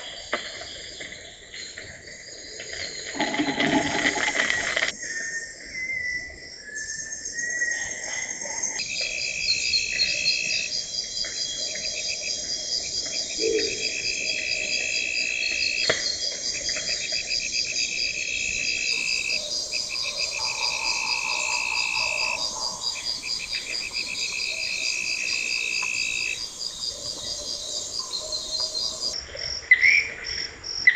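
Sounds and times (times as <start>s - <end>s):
insects trilling and chirping: 0.2s - 5.9s, 6.5s - 30.9s.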